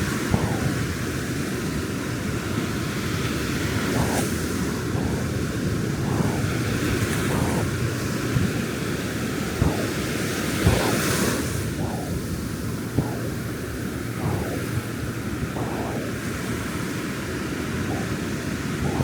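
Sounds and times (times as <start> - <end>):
ocean surf on beach: 0.0 - 19.0
wind buffeting microphone: 0.0 - 19.0.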